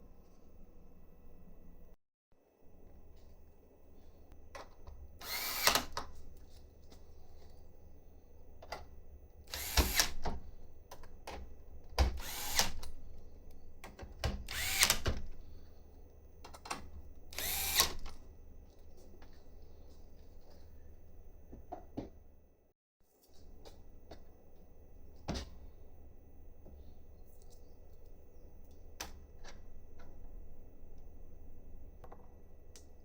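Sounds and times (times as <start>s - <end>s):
cordless power driver spinning: 5.2s - 5.9s, 9.5s - 10.2s, 12.2s - 12.8s, 14.5s - 15.2s, 17.4s - 18.1s.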